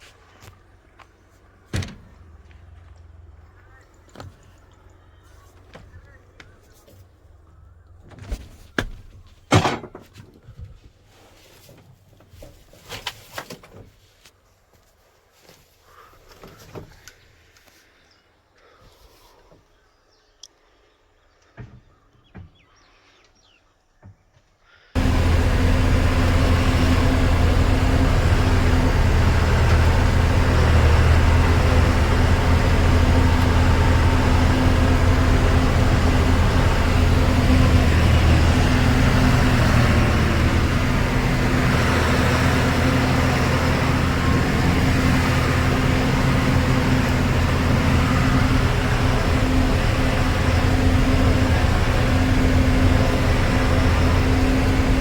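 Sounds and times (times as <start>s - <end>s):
tractor diesel engine running: 0.1s - 9.0s, 25.0s - 55.0s.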